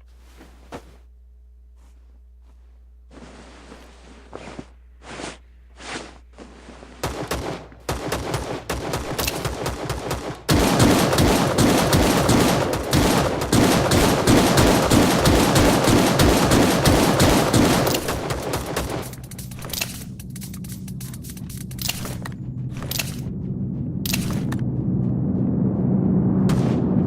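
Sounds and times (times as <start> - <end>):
rapid automatic gunfire: 7.0 - 19.8
video game gunshots: 7.0 - 23.3.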